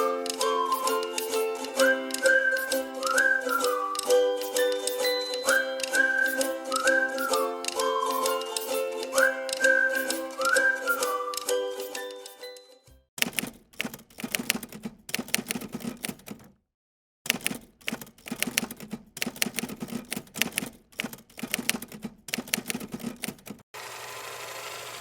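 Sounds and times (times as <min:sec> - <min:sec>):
rapid sharp mechanical clicking: 0:13.2 - 0:16.5, 0:17.3 - 0:23.6.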